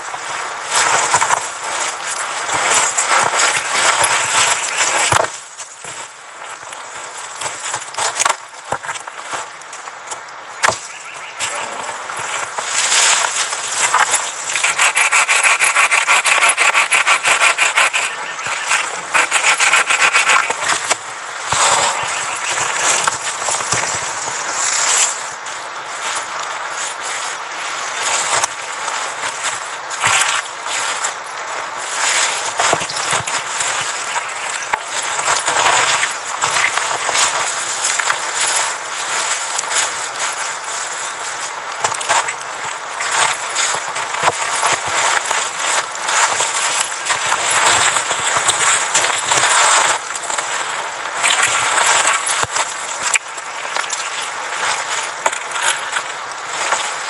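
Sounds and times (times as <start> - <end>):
hand saw cutting wood: 14.5 - 20.6.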